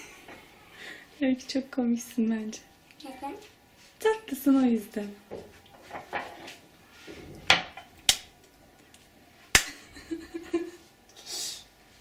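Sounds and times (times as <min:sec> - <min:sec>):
short hiss: 0:11.2 - 0:11.7.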